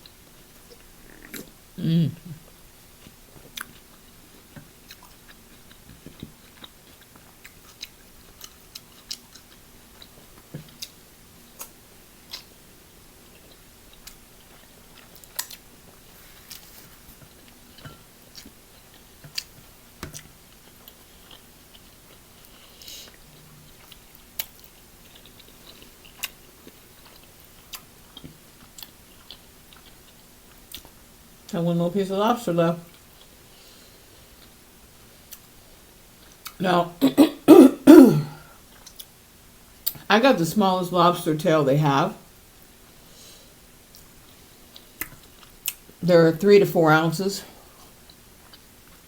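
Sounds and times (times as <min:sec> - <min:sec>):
person chewing seafood: 0:03.0 - 0:12.6, 0:13.3 - 0:30.9.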